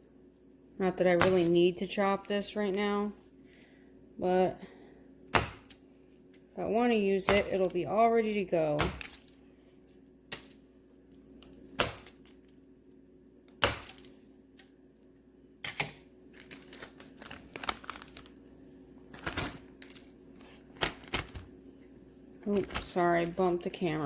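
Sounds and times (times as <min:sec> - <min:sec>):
knife chopping wax on cutting board: 0:05.3 - 0:05.8.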